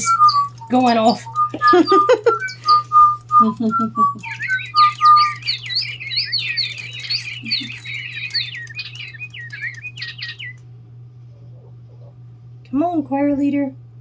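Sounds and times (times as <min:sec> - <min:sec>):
electronic toy birds chirping: 0:00.0 - 0:10.6
steady low hum: 0:00.0 - 0:14.0.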